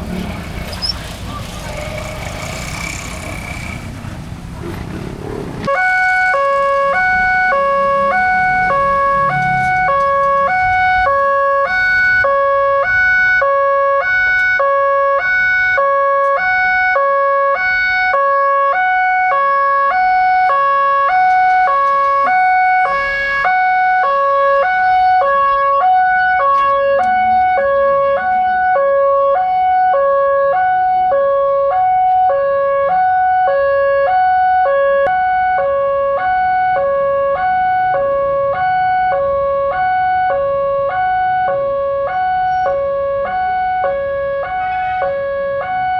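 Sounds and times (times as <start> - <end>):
level crossing two-tone alarm: 5.7 - 17.0, 19.1 - 28.9.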